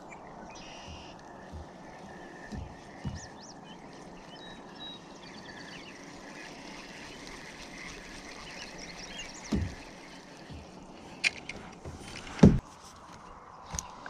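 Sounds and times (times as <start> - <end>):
small birds chirping: 0.0 - 11.6
steady outdoor hiss: 0.0 - 14.0
low thump: 12.4 - 12.6.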